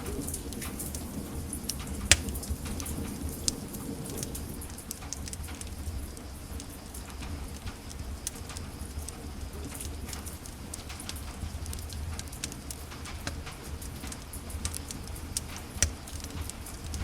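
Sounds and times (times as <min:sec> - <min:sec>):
low rumble of flames: 0:00.0 - 0:17.0
wood fire crackling: 0:00.0 - 0:17.0.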